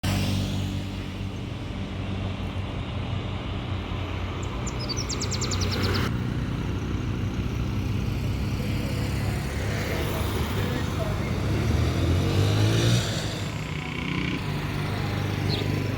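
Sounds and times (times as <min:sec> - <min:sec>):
vehicle engine humming: 0:00.0 - 0:15.9
bird chirping: 0:04.4 - 0:06.1, 0:14.8 - 0:15.9.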